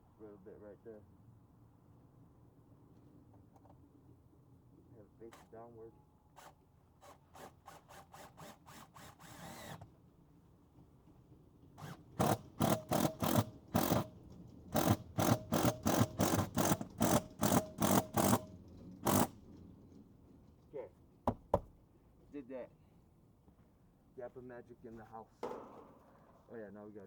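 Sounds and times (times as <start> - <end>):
screw rasping into wood: 6.4 - 9.8, 11.8 - 14.1, 14.8 - 19.3.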